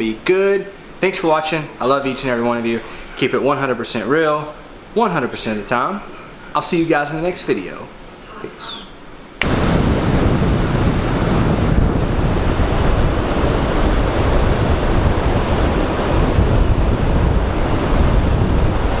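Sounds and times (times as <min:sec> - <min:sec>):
ocean surf on a beach: 0:09.4 - 0:19.0
wind buffeting microphone: 0:09.4 - 0:19.0.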